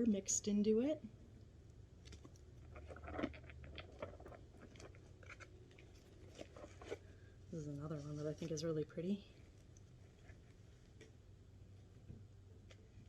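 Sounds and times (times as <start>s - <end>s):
cat chewing cardboard: 2.0s - 7.3s.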